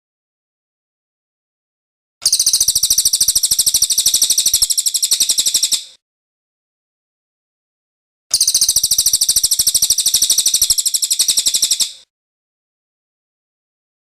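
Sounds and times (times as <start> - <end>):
bird trilling: 2.2 - 6.0, 8.3 - 12.0.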